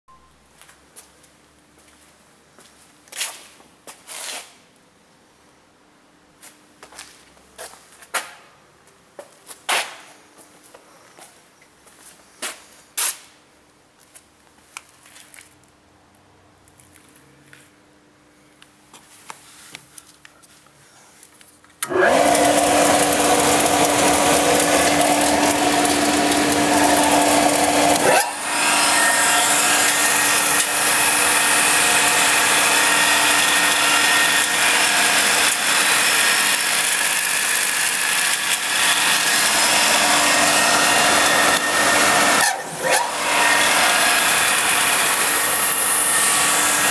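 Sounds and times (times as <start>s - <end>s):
belt grinder grinding metal: 21.8s - 46.9s.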